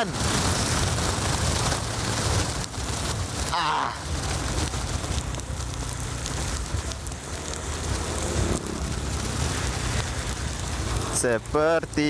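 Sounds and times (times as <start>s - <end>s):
wind noise: 0.0s - 11.9s
rain on microphone: 0.0s - 12.0s
scooter engine humming: 4.1s - 11.2s.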